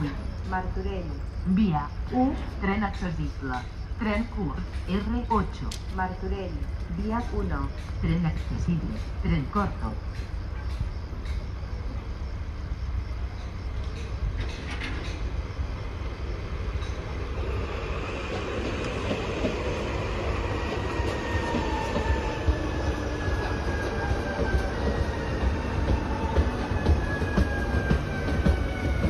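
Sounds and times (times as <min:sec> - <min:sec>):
electric train rumbling past: 0:00.0 - 0:29.0.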